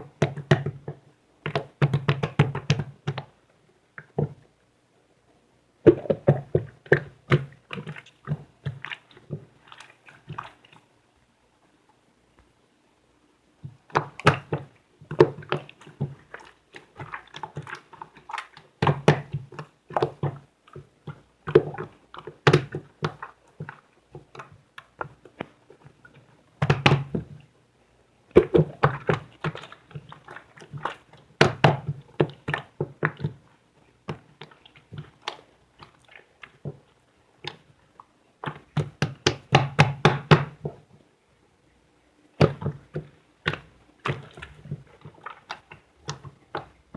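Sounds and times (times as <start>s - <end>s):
clay squished by hand: 13.7s - 25.5s, 26.6s - 27.4s, 28.3s - 33.4s, 38.4s - 40.8s, 42.4s - 46.9s.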